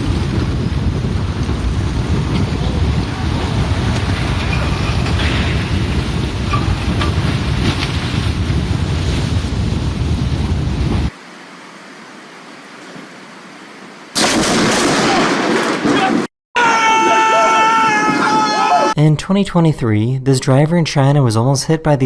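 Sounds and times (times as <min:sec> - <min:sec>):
mudslide rumbling: 0:00.0 - 0:11.2
wind on microphone: 0:00.0 - 0:11.2.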